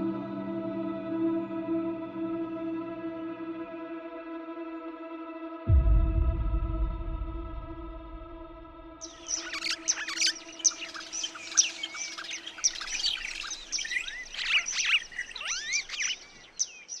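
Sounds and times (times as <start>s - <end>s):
birds chirping and whistling: 9.0s - 17.0s.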